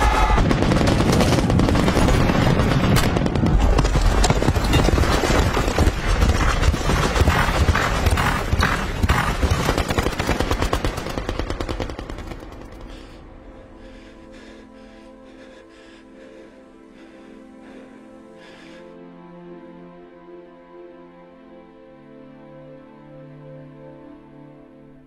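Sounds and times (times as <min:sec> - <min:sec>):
machine gun firing rapidly: 0:00.2 - 0:12.5.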